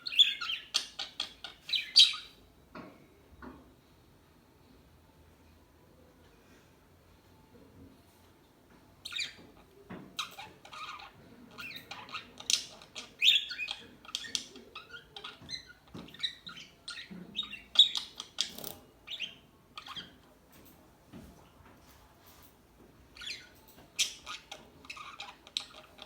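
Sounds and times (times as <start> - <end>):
parakeets chirping and squawking: 0.1 - 2.4, 10.2 - 20.2, 23.2 - 26.0.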